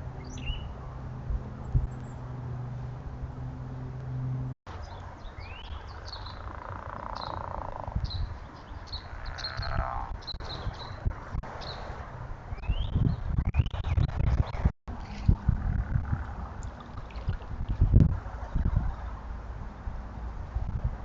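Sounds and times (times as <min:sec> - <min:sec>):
outdoor background noise: 0:00.0 - 0:21.0
small birds chirping: 0:00.2 - 0:01.0, 0:04.7 - 0:11.9, 0:12.5 - 0:14.7
steady low hum: 0:14.9 - 0:21.0.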